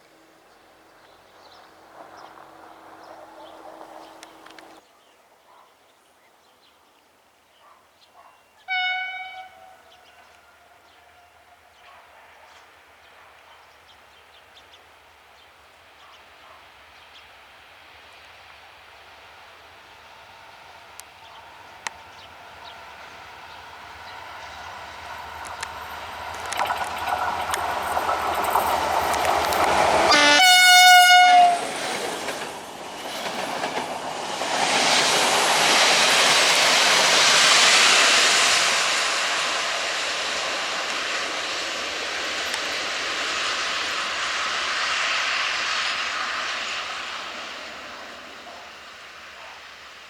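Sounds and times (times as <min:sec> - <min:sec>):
train engine and wheel noise: 0:00.0 - 0:04.9, 0:07.6 - 0:50.0
locomotive horn blast: 0:08.7 - 0:11.6, 0:30.0 - 0:31.8.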